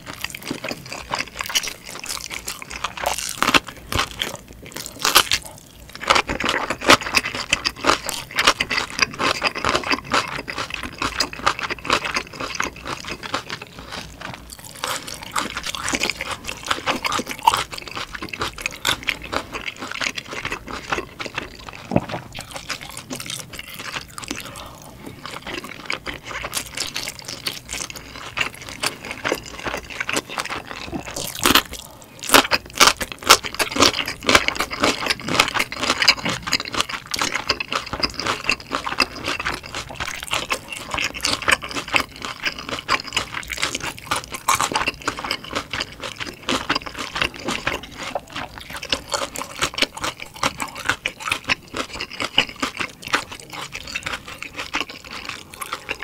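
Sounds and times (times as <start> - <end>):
wet chewing mouth sounds: 0.0 - 56.0.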